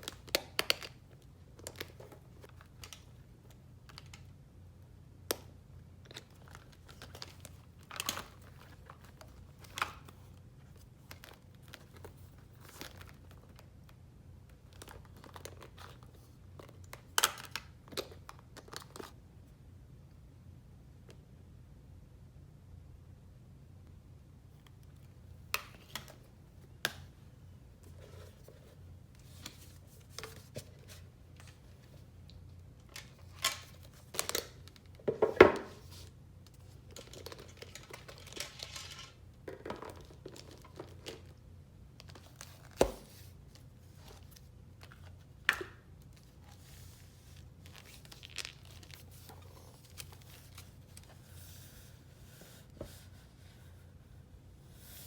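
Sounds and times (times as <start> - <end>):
paper crinkling and tearing: 46.4 - 51.1.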